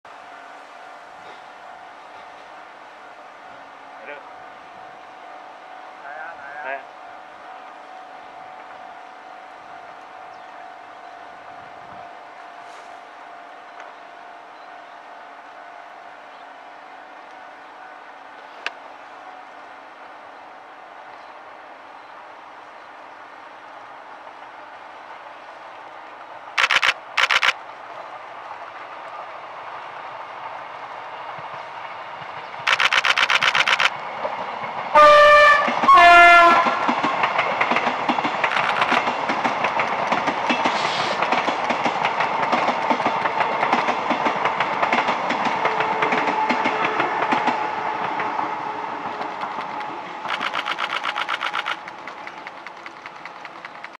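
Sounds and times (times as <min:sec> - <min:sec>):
train rumble: 0:00.1 - 0:53.9
train horn blasts: 0:35.0 - 0:37.0, 0:45.6 - 0:49.4
wheel clatter over rail joints: 0:49.0 - 0:53.9.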